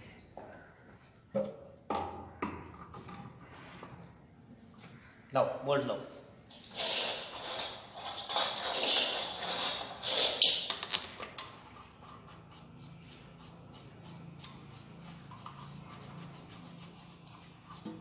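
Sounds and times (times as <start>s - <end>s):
metal rubbing and scraping: 6.5s - 18.0s.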